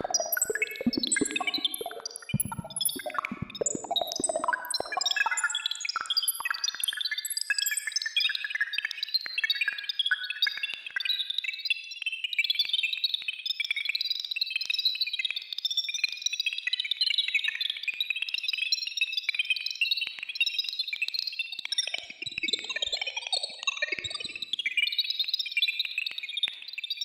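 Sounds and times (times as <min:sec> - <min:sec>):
gliding electronic tones: 0:00.0 - 0:05.6
high electronic chirps: 0:00.0 - 0:05.8.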